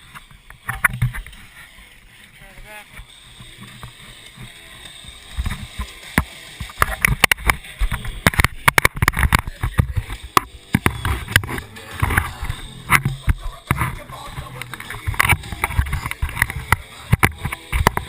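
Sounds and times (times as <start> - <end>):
knocks and clatters on kayak: 8.2 - 12.3.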